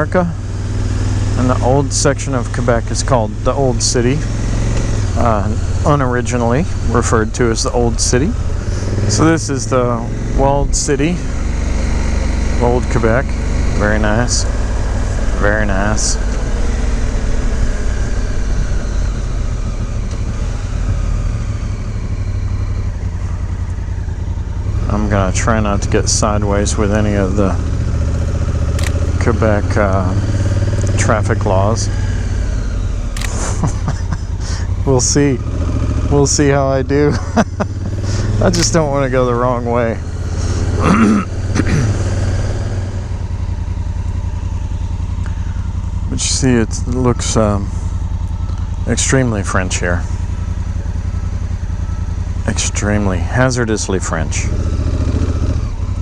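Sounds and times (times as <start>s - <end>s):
motorcycle engine running: 0.0s - 56.0s
click: 28.8s - 29.0s.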